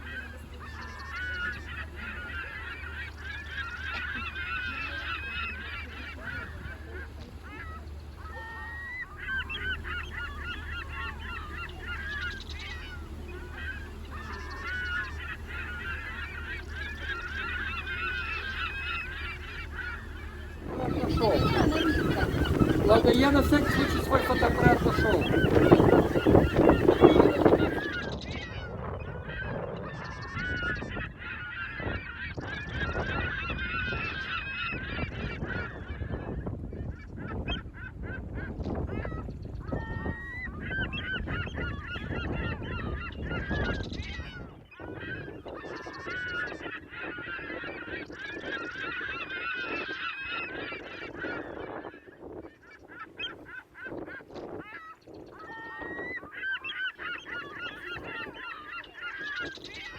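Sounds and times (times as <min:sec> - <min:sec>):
flock of birds calling: 0:00.0 - 0:59.9
low rumble: 0:00.4 - 0:28.2.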